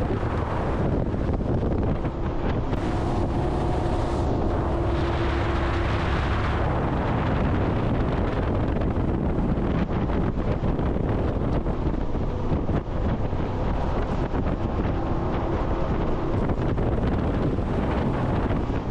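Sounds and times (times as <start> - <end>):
boat engine rumble: 0.0 - 18.9
water rushing: 0.0 - 18.9
wind buffeting microphone: 0.0 - 18.9
faint steady whine: 1.7 - 7.8.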